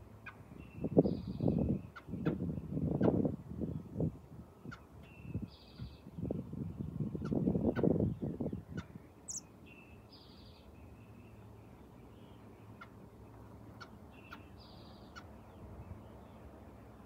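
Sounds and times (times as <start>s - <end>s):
high-pitched bird calls: 8.7s - 9.5s.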